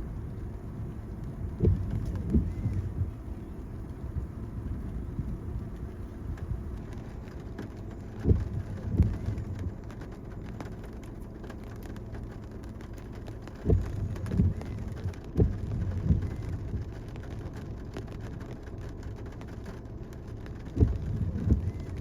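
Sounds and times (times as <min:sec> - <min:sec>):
car road rumble from inside: 0:00.0 - 0:22.0
low thumps: 0:01.3 - 0:03.2, 0:13.7 - 0:14.6.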